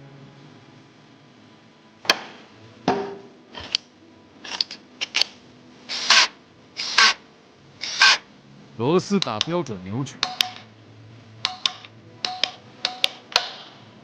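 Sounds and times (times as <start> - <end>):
hand tools clicking: 11.5 - 13.7.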